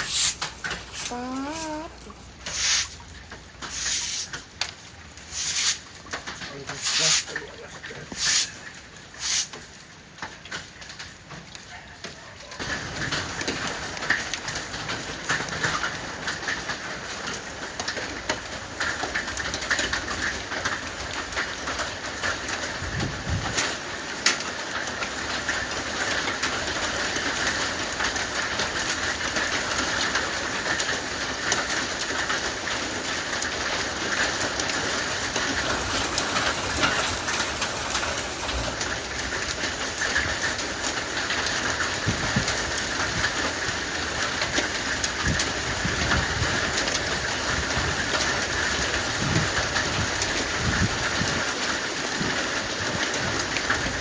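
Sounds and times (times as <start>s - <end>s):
heavy hail pattering: 12.6s - 54.0s.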